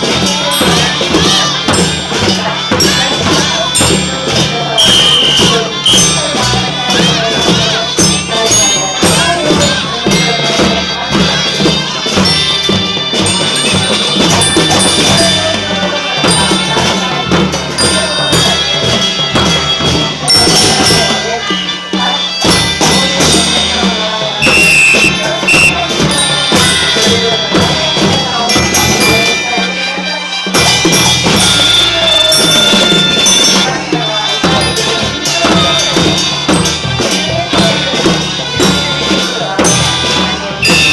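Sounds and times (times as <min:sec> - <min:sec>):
marching drums and tambourine: 0:00.0 - 0:40.9
sustained melody notes: 0:24.4 - 0:25.9.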